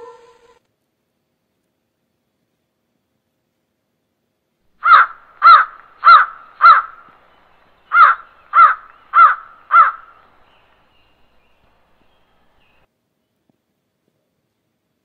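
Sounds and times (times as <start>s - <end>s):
crow cawing: 4.8s - 7.2s, 7.8s - 10.5s.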